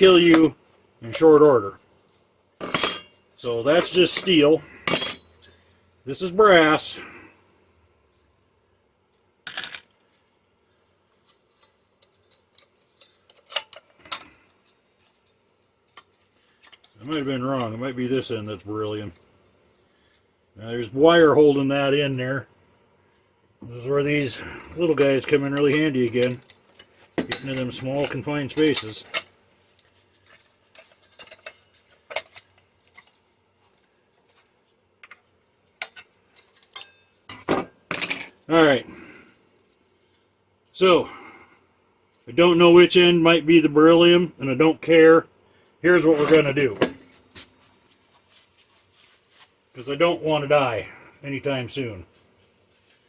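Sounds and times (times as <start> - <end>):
small metal parts clinking: 30.2 - 33.1.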